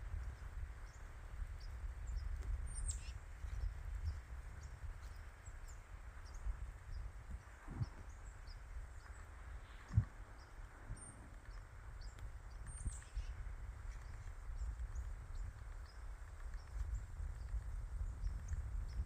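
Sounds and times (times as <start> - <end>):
faint high bird chirps: 1.6 - 16.0.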